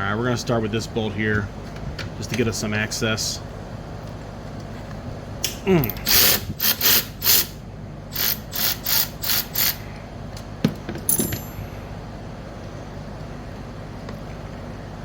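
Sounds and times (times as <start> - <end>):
socket ratchet clicking: 6.0 - 7.5, 8.1 - 9.8
metallic clink: 11.1 - 11.7.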